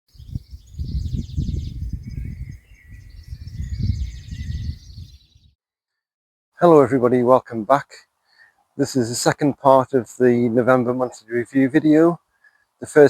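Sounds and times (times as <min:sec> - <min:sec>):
small birds chirping: 0:00.1 - 0:05.6, 0:08.2 - 0:08.8, 0:10.6 - 0:13.0
wind rumble on microphone: 0:00.1 - 0:05.6.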